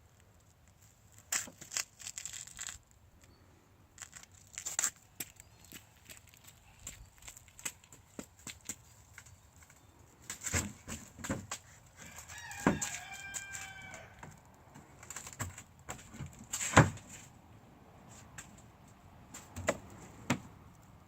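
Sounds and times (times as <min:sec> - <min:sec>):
rooster crowing: 0:12.0 - 0:14.4.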